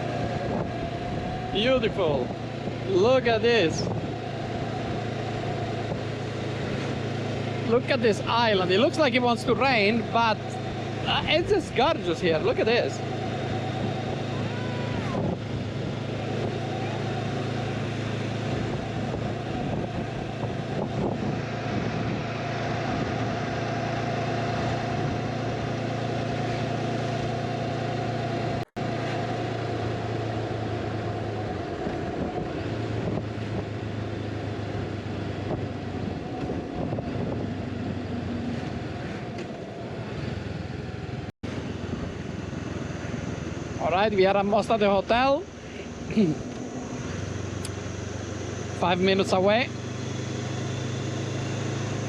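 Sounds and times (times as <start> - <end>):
wind noise: 0.0 - 7.6, 8.2 - 25.8, 30.4 - 40.7
motorcycle engine cruising: 0.0 - 52.0
road noise: 0.0 - 52.0.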